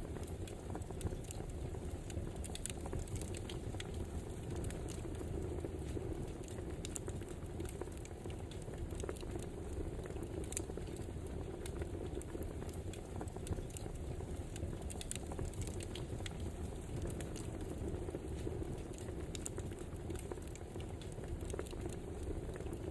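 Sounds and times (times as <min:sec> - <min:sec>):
wood fire crackling: 0:00.0 - 0:22.9.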